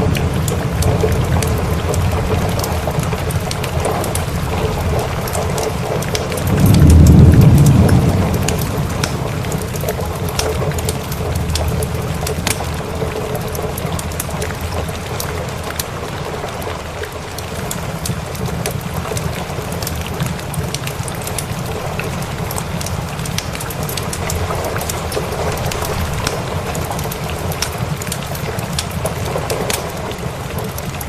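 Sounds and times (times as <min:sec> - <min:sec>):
low roll of thunder: 0:00.0 - 0:12.7
log fire crackling: 0:00.0 - 0:31.0
steady rain: 0:00.0 - 0:31.0.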